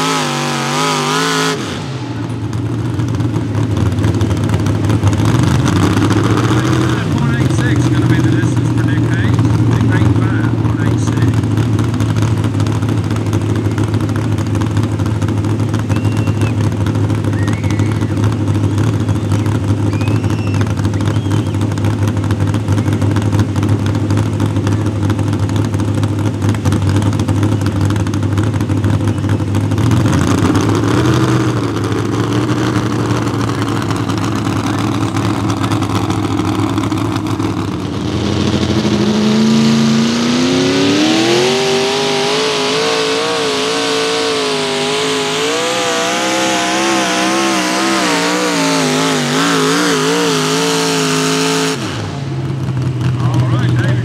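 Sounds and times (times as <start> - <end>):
engine revving up: 0.0 - 2.7, 5.1 - 11.4, 29.8 - 54.0
tractor engines running loud: 0.0 - 54.0.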